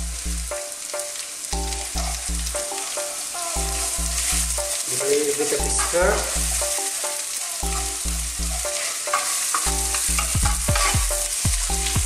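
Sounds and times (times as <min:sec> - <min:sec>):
paste sizzling in hot oil: 0:00.0 - 0:12.0
wooden spoon stirring: 0:02.0 - 0:11.2.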